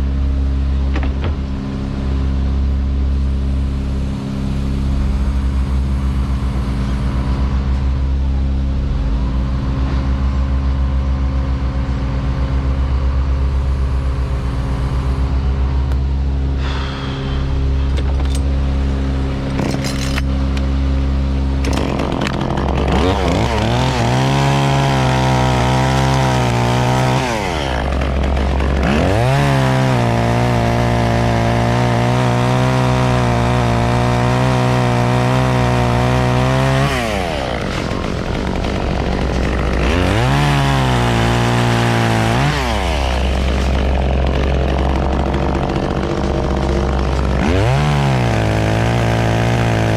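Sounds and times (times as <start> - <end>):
low engine hum: 0.0 - 49.7
chainsaw revving: 21.6 - 49.9.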